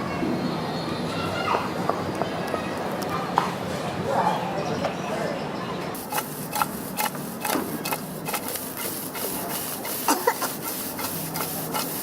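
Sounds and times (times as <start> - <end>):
metal spatula scraping: 6.1 - 12.0
food sizzling in a wok: 8.6 - 12.0.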